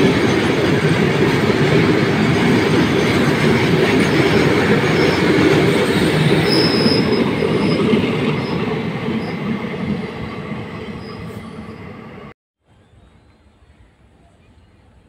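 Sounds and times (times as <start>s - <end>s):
freight train wheels rumbling: 0.0s - 12.3s
high wheel squeals: 3.9s - 12.0s.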